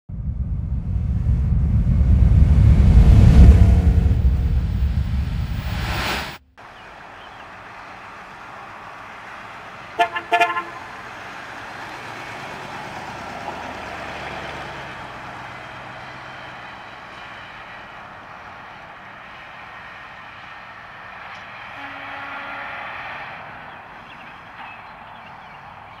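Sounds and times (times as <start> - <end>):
car engine driving past: 0.1 - 17.8.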